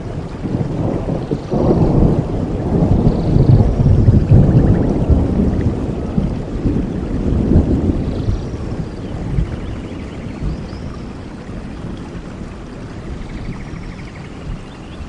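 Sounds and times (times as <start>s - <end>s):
rolling thunder: 0.0s - 14.7s
steady rain: 0.0s - 15.0s.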